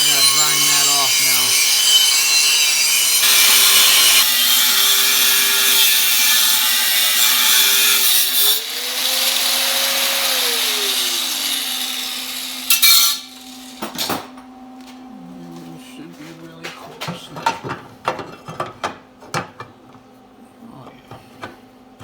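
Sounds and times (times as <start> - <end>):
power grinder grinding steel: 0.0 - 14.0.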